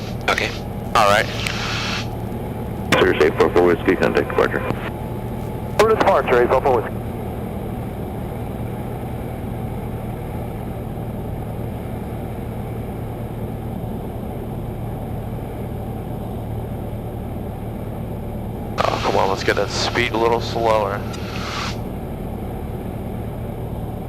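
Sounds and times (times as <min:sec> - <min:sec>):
airflow noise: 0:00.0 - 0:07.0, 0:18.8 - 0:22.0
small plane engine drone in cabin: 0:00.0 - 0:24.0.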